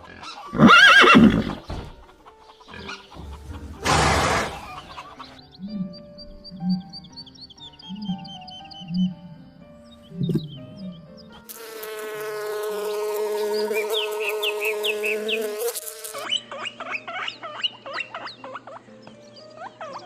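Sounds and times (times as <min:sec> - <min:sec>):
flying insect buzzing: 0:11.5 - 0:16.3.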